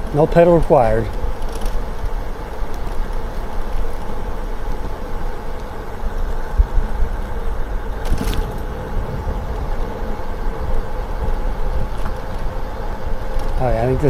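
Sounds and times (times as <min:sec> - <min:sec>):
road noise: 0:04.8 - 0:13.6
wind rumbling on microphone: 0:06.5 - 0:13.6.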